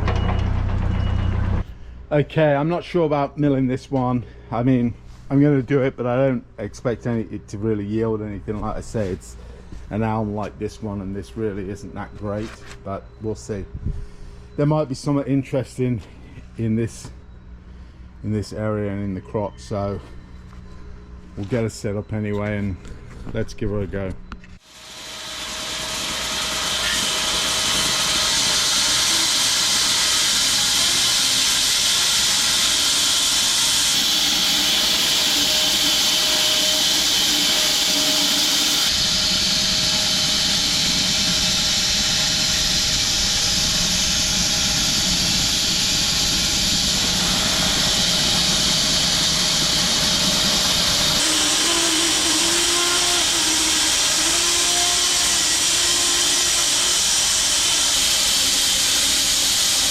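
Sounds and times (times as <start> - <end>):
bandsaw mill sawing wood: 24.6 - 59.9.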